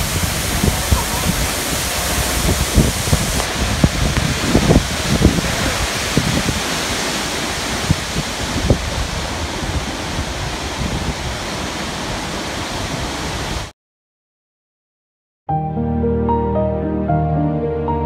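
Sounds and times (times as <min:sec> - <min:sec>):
waterfall rushing: 0:00.0 - 0:13.7
wind thumps on microphone: 0:00.0 - 0:13.7.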